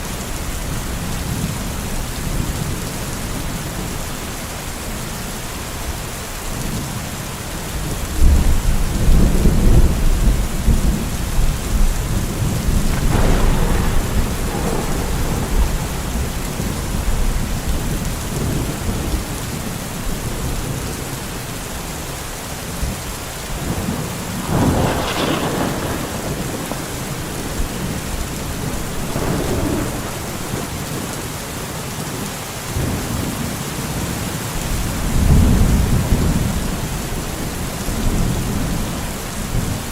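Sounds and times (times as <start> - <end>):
steady rain: 0.0 - 39.9
thunder rumbling: 8.2 - 20.8, 22.8 - 31.8
sharp thunder peal: 11.7 - 19.1, 23.7 - 31.4.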